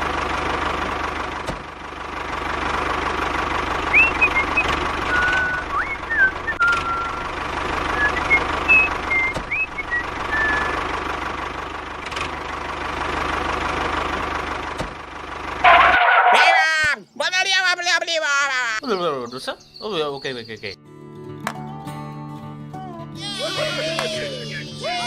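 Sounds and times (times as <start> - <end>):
short whistled chirps: 3.9 - 7.2, 8.0 - 10.8.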